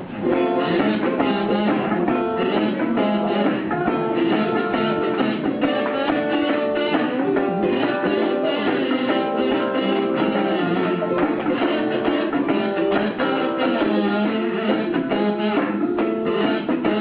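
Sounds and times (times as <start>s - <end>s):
plucked string instruments playing: 0.0s - 17.0s.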